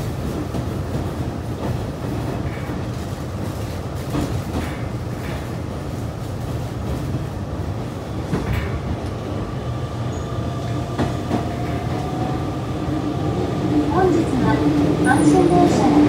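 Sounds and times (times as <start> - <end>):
train interior low rumble: 0.0 - 16.0.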